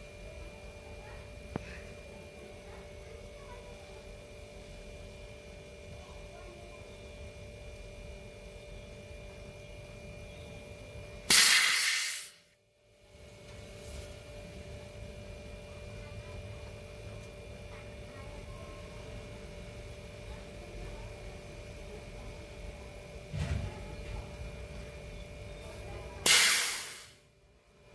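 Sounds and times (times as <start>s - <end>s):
sudden loud hiss: 11.3s - 12.5s, 26.2s - 27.2s.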